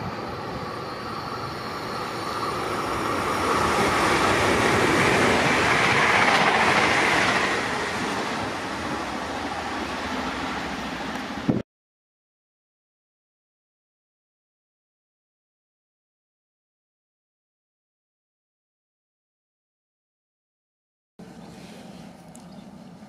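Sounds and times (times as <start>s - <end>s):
train wheels rushing on rail: 0.0s - 11.6s.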